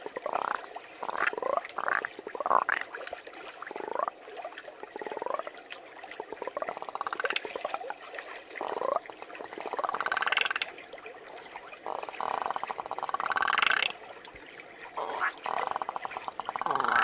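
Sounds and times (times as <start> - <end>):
person imitating frog croaks: 9.6 - 10.6, 11.8 - 13.9, 15.0 - 17.0.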